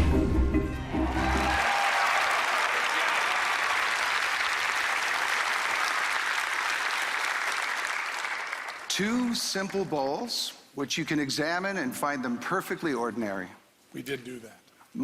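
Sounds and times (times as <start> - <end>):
audience applauding: 0.9 - 9.9.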